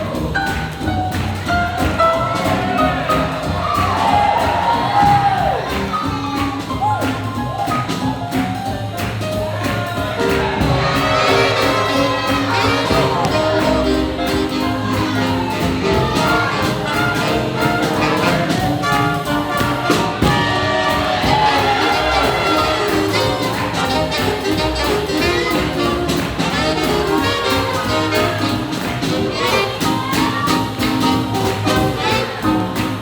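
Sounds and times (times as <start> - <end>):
swing jazz big band: 0.0 - 33.0.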